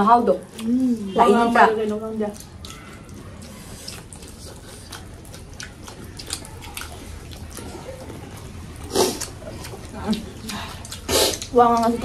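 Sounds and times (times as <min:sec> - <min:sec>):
people chewing food: 0:00.0 - 0:12.0
mouth clicks and smacks: 0:01.8 - 0:08.2, 0:08.8 - 0:12.0.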